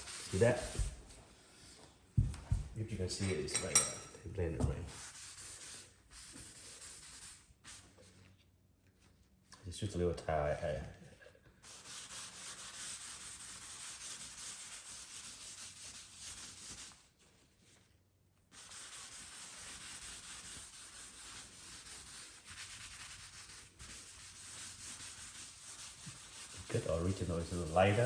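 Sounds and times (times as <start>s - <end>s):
towel rubbing on wooden floor: 0.0s - 1.2s, 18.6s - 28.0s.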